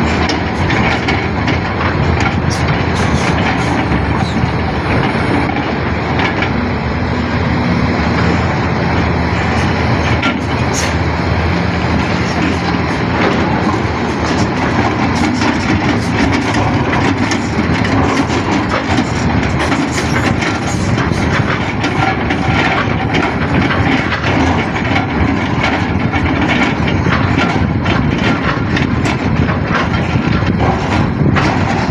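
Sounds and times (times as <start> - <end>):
excavator diesel engine running: 0.0 - 31.9
metal clanks and rattles: 0.0 - 31.9.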